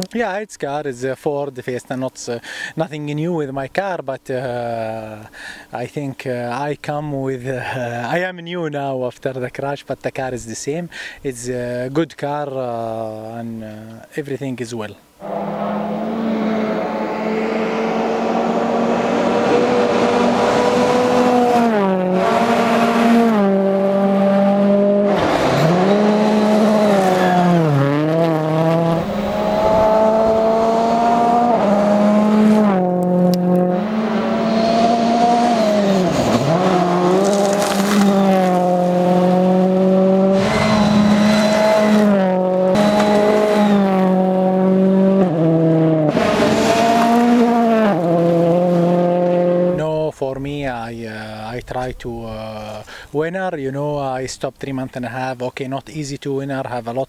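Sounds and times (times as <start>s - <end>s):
rally car engine revving: 15.2s - 49.8s.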